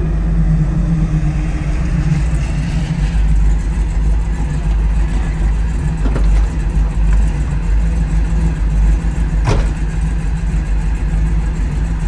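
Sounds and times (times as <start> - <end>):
car engine idling: 0.0 - 12.0
short knock: 9.4 - 9.8.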